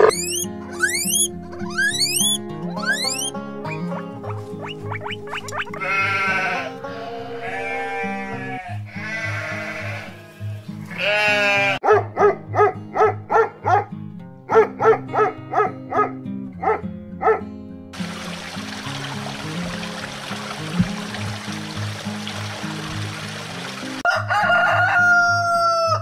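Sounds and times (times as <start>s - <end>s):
background music: 0.0s - 17.4s
dog barking: 3.7s - 4.4s, 11.8s - 17.5s
livestock bleating: 5.7s - 11.8s.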